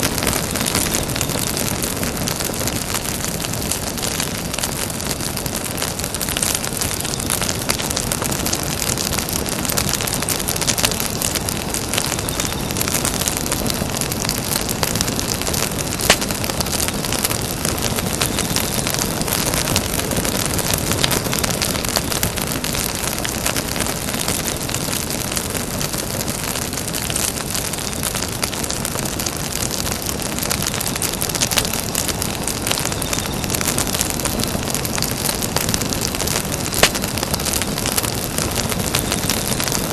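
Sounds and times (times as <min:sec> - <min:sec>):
campfire crackling: 0:00.0 - 0:39.9
sharp fire pop: 0:36.4 - 0:38.3.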